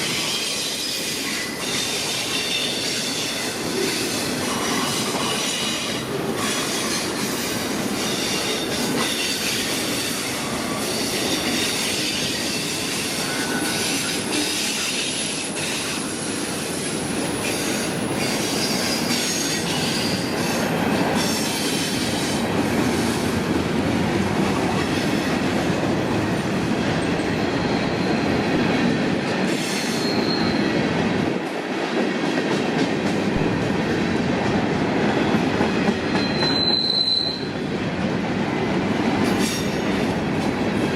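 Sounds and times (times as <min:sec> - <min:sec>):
high wheel squeal: 0:29.8 - 0:30.7, 0:36.2 - 0:37.5.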